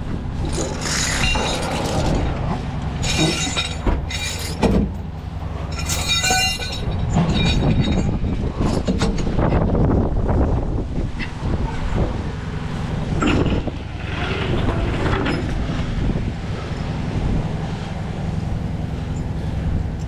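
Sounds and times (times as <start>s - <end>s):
truck engine running: 0.0s - 20.0s
metal chain and hooks clanking: 0.4s - 9.4s.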